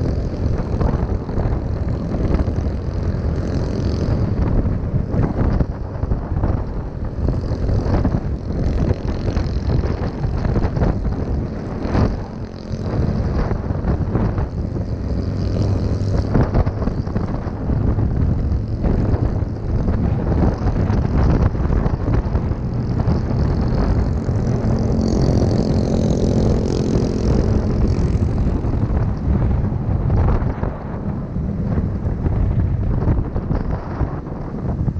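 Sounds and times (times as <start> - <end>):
small motorbike engine running: 0.0 - 34.9
wind buffeting microphone: 0.0 - 34.9.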